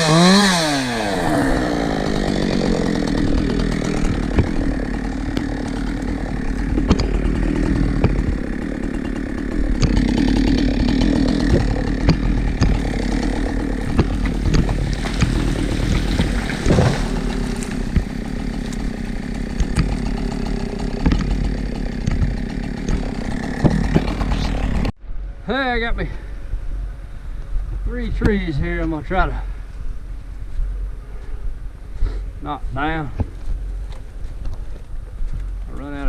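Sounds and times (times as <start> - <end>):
chainsaw running: 0.0 - 24.9.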